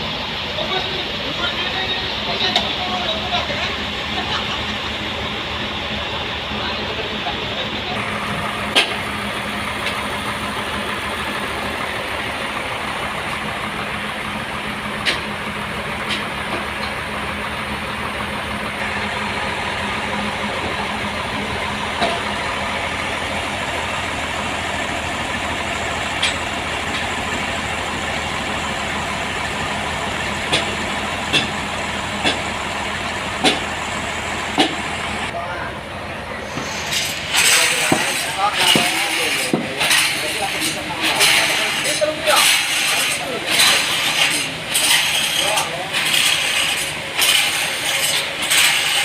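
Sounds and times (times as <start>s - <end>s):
sawmill machinery humming: 0.0s - 49.0s
sharp knocks: 30.5s - 31.6s, 33.4s - 33.7s, 34.6s - 34.8s.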